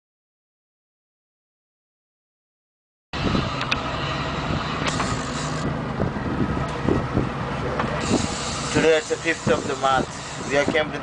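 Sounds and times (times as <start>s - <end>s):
boat engine running: 3.2s - 11.0s
wind buffeting microphone: 3.2s - 11.0s.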